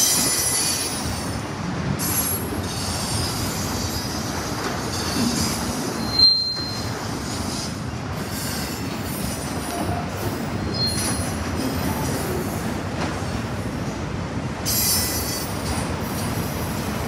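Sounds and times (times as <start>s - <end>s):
train wheels rumbling on rails: 0.0s - 17.0s
high-pitched wheel squeal: 6.0s - 7.8s, 10.6s - 11.3s.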